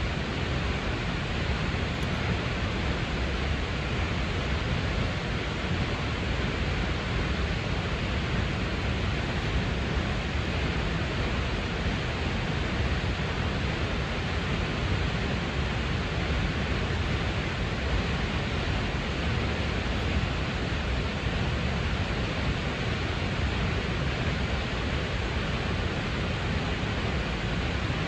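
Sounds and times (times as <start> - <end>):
waterfall rushing: 17.4 - 28.0.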